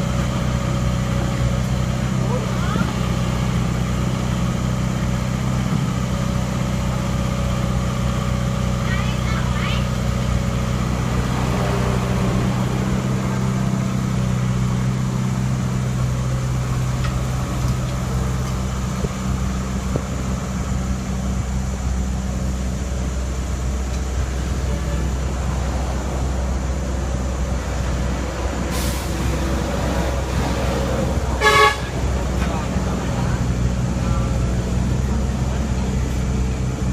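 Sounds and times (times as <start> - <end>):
diesel engine running: 0.0 - 36.9
short hiss: 28.7 - 29.3.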